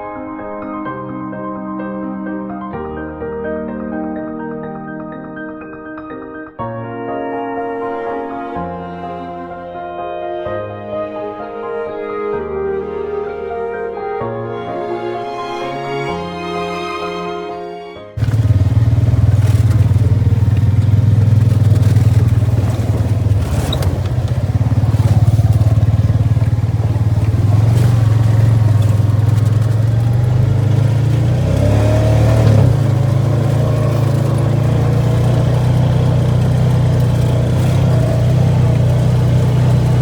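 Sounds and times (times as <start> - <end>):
atv engine running: 18.2 - 40.0.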